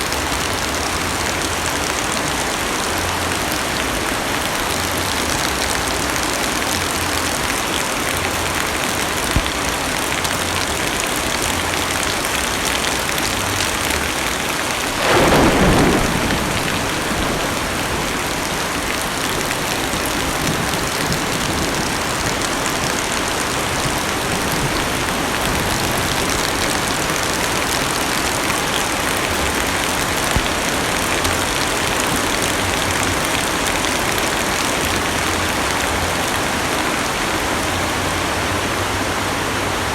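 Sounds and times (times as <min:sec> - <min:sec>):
heavy rain on car roof: 0:00.0 - 0:37.8
heavy raindrops ticking: 0:04.1 - 0:34.6.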